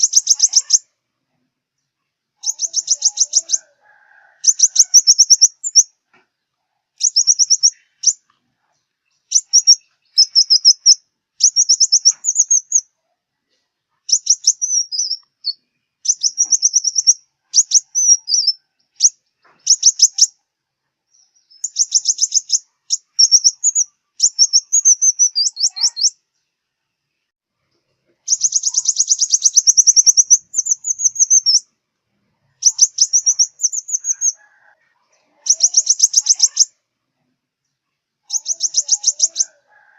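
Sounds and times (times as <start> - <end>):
bird twittering trills: 0.0 - 0.9, 2.4 - 3.7, 4.4 - 5.9, 7.0 - 8.3, 9.0 - 12.9, 14.1 - 20.4, 21.1 - 26.2, 28.2 - 31.7, 32.6 - 34.5, 35.4 - 36.8, 38.2 - 39.6.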